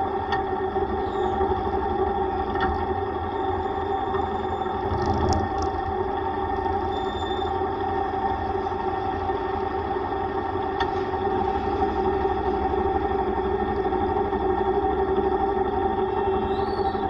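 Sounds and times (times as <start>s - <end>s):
low road rumble: 0.0s - 17.0s
motorcycle engine running: 4.8s - 5.8s.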